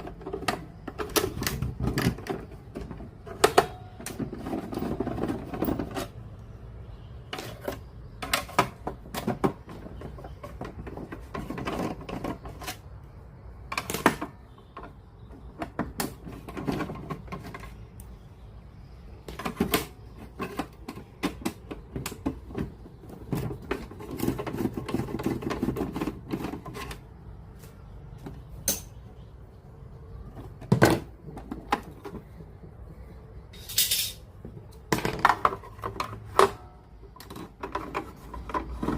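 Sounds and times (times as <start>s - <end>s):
plastic parts and tools clicking: 0.0s - 18.2s, 19.1s - 29.0s, 33.6s - 38.9s.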